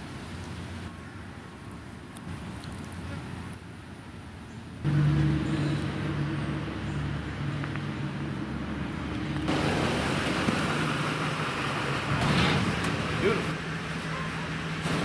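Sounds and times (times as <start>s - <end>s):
broad rushing noise: 4.8s - 15.0s
vehicle engine running: 4.8s - 15.0s.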